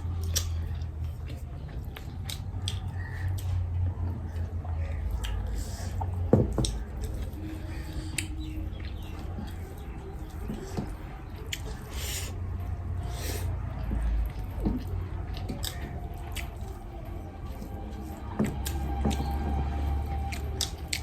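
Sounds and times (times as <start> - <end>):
wet chewing: 0.0 - 21.0
mouth and lip clicks: 0.2 - 3.6.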